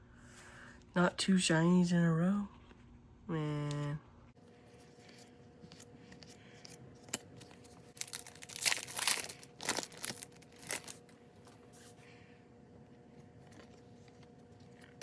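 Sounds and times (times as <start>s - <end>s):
foil wrapper tearing and crinkling: 7.0s - 11.0s.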